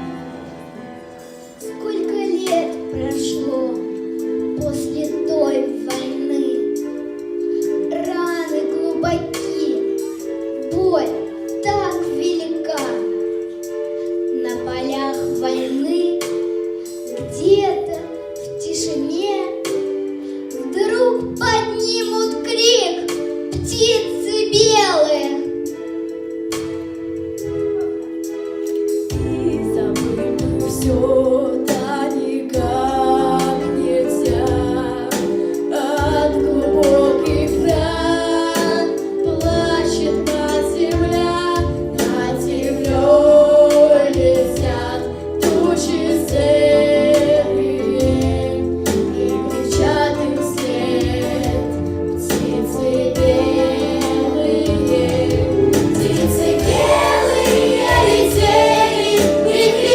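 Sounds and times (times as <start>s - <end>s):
instrumental accompaniment: 0.0s - 59.9s
several voices singing: 40.8s - 59.9s.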